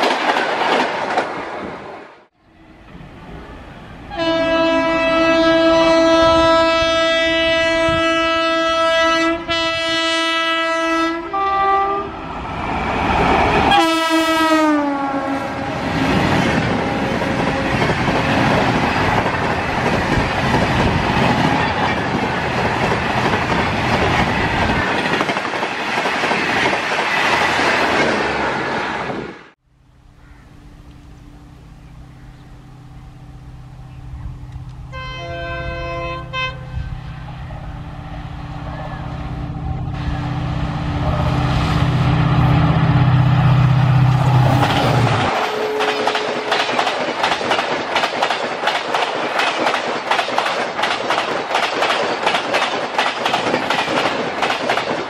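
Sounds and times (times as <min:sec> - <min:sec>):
train coaches rushing past: 0:00.0 - 0:06.4, 0:11.3 - 0:29.6, 0:34.9 - 0:55.0
two-tone locomotive horn: 0:04.0 - 0:12.2, 0:13.7 - 0:16.0, 0:16.7 - 0:18.5, 0:34.8 - 0:37.8, 0:45.2 - 0:46.8.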